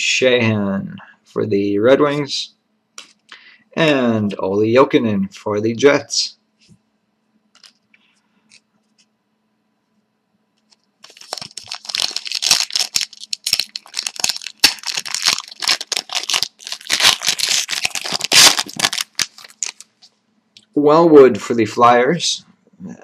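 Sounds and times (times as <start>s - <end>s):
card pack wrapper crinkling and tearing: 7.6s - 7.8s, 11.0s - 20.0s.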